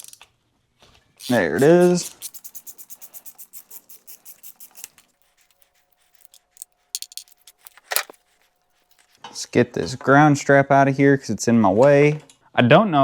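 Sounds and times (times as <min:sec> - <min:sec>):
scratchy hand tool strokes: 0:01.2 - 0:09.3.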